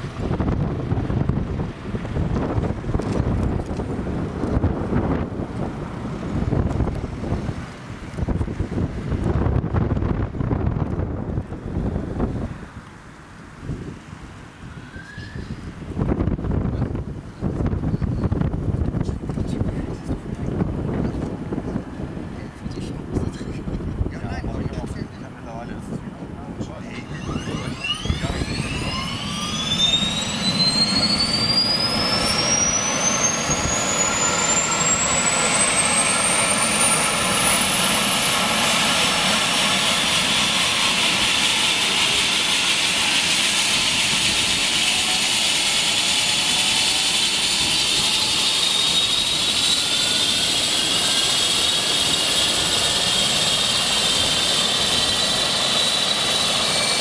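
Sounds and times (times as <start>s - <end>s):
helicopter engine whine: 0.0s - 13.2s, 14.5s - 57.0s
loud rushing noise: 26.6s - 57.0s.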